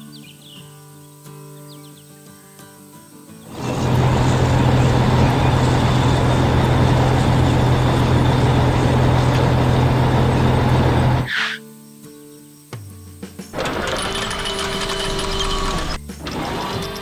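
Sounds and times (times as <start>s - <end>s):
vehicle engine humming: 3.5s - 11.3s, 13.6s - 17.0s.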